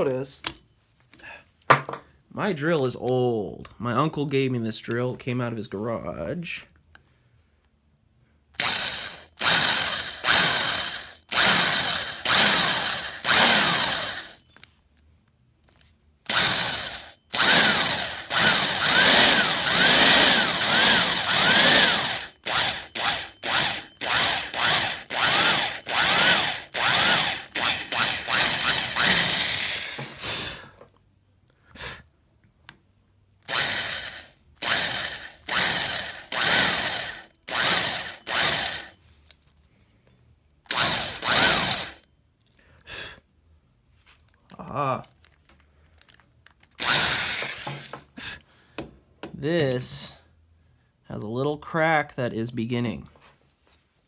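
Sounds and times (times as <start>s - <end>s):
electric drill boring into wood: 8.6s - 14.4s, 16.3s - 30.2s, 33.4s - 39.0s, 40.7s - 42.0s, 46.8s - 48.0s.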